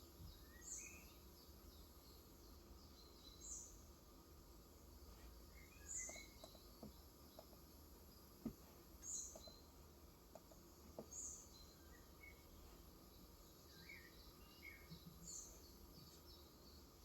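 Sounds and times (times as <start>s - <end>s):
bird chirps: 5.6s - 7.5s.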